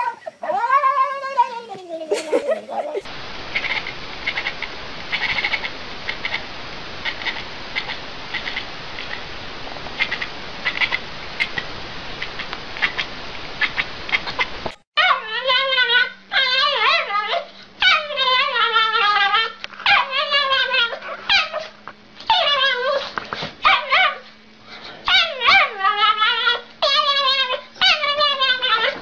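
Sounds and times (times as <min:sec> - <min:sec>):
dog whining and howling: 0:00.0 - 0:01.8, 0:15.0 - 0:24.3, 0:25.0 - 0:29.0
faint low hum: 0:00.0 - 0:29.0.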